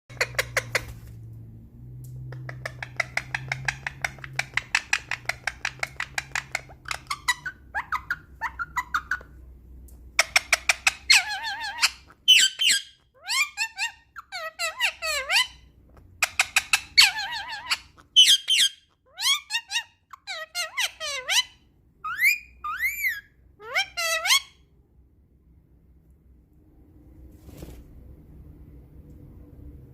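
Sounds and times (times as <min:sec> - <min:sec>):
parrot talking: 0:02.3 - 0:09.4, 0:10.2 - 0:24.6.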